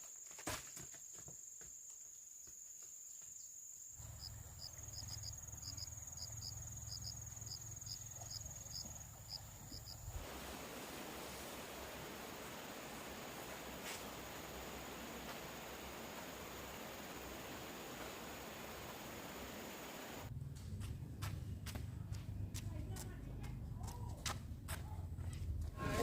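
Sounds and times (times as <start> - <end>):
insects trilling: 1.0 - 10.2, 11.7 - 20.3.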